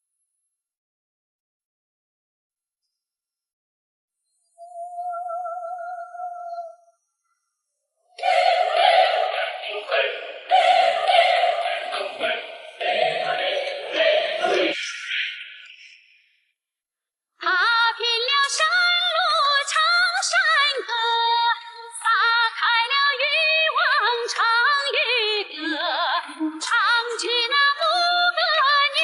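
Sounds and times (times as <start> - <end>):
woman singing with vibrato: 4.6 - 6.9, 8.2 - 9.6, 10.5 - 12.2, 17.4 - 29.0.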